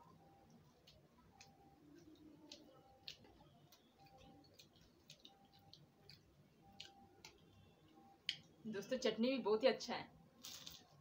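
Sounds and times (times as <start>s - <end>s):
person chewing: 0.0s - 8.5s.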